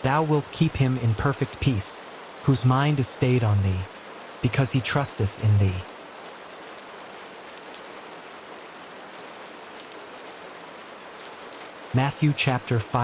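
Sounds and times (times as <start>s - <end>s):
soft rain hiss: 0.0s - 13.0s
raindrop ticks: 0.1s - 5.9s.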